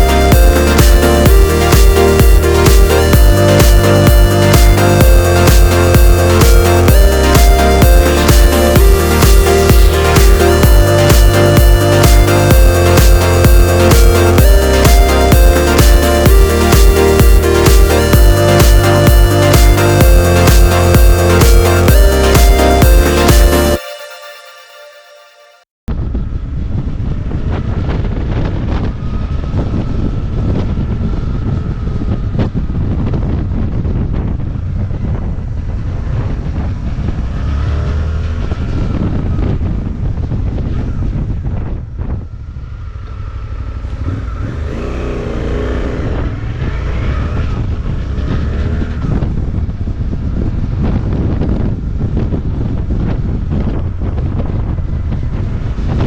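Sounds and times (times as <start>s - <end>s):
wind buffeting microphone: 25.9s - 44.7s, 45.6s - 56.0s
motorcycle engine revving: 34.6s - 39.2s, 42.2s - 49.8s.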